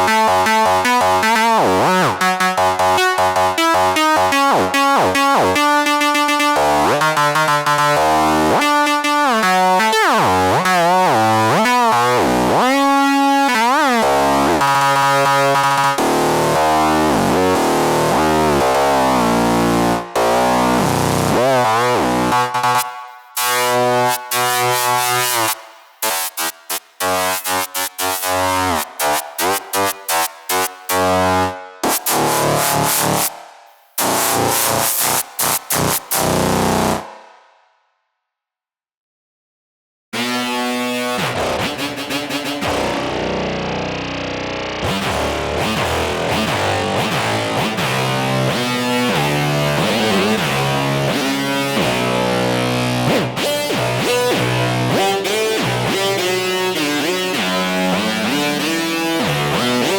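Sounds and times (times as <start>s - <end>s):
synthesizer chords and tones: 0.0s - 37.2s.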